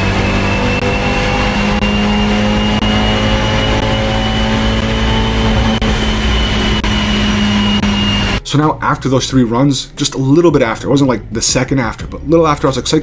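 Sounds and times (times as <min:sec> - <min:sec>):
car engine under load: 0:00.0 - 0:08.4
thin high whine: 0:00.0 - 0:08.4.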